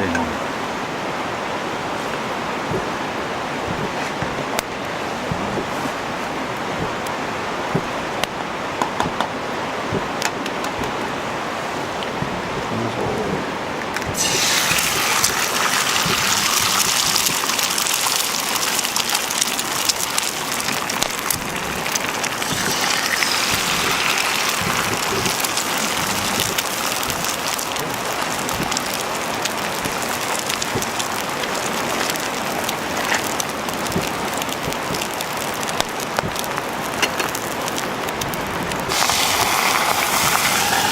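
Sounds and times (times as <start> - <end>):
wood fire crackling: 0.0 - 40.9
food sizzling in a hot pan: 14.2 - 31.7, 38.9 - 40.9.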